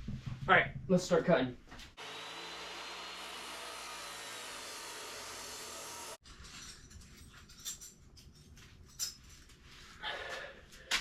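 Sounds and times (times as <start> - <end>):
power tool cutting steel: 2.0 - 6.2.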